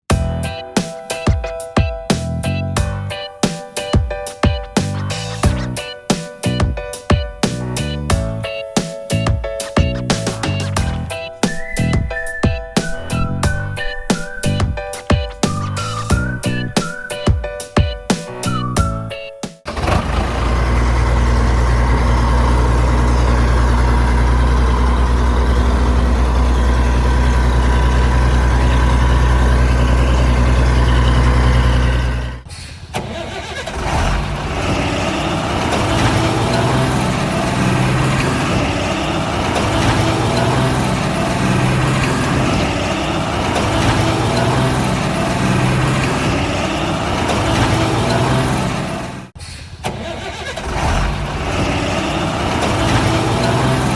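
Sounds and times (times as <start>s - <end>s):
engine note swelling: 19.7s - 32.4s, 33.8s - 49.4s
heavy vehicle engine idling: 19.7s - 32.4s, 33.3s - 49.4s, 50.2s - 53.9s.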